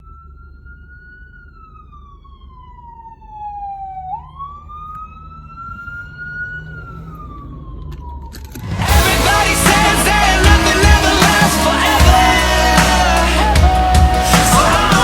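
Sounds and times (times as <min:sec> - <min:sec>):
fire engine siren wailing: 0:00.0 - 0:15.0
low rumble: 0:08.6 - 0:15.0.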